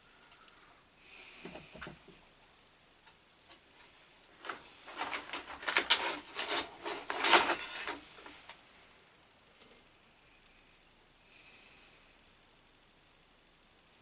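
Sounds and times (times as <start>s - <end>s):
small metal parts rattling: 4.3s - 8.6s.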